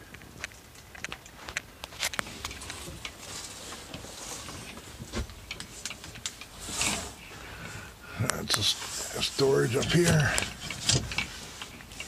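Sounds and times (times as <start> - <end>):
small clicks and taps: 0.1 - 3.2.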